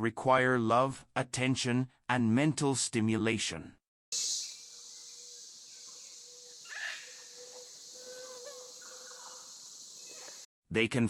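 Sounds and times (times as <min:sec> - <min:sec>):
high-pitched insect chirring: 0:04.2 - 0:10.4.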